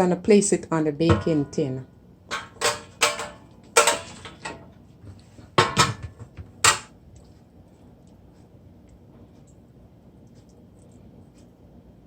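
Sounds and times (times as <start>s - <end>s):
metal baking tin clanking: 1.0s - 4.7s, 5.6s - 6.9s.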